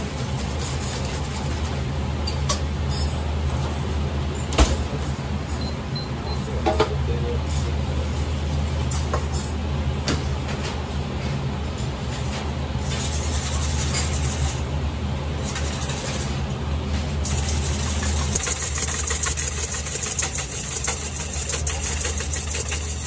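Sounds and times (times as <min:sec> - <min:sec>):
whisk rattling against bowl: 0:12.9 - 0:14.6, 0:15.4 - 0:16.3, 0:17.2 - 0:23.0
electric whisk motor hum: 0:17.3 - 0:23.0.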